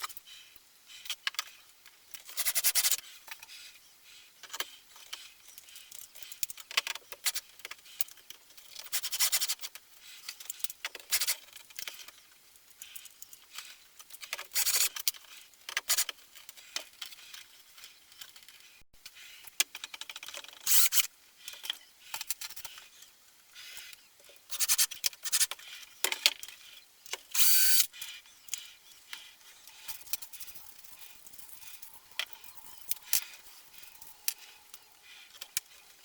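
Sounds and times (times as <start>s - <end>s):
tools scraping and clicking: 19.5s - 23.1s, 23.8s - 36.0s.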